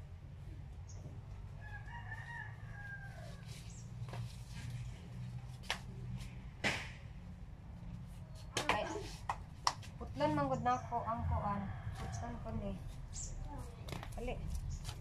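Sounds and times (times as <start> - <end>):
rooster crowing: 1.6 - 3.7, 11.3 - 12.8.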